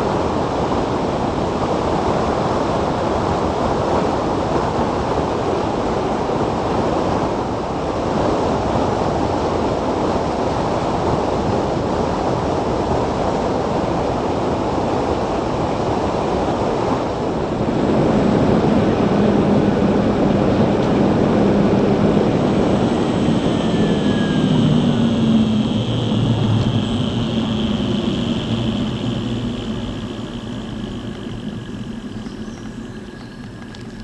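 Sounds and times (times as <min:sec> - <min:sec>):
wind rush: 0:00.0 - 0:34.0
faint high whine: 0:07.6 - 0:34.0
road noise: 0:16.3 - 0:34.0
electric motor hum: 0:17.6 - 0:34.0.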